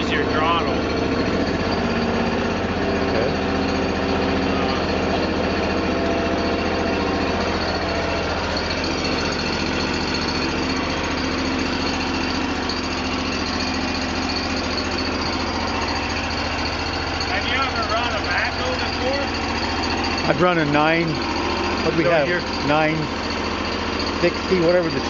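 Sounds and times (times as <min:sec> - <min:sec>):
backhoe engine running: 0:00.0 - 0:25.0.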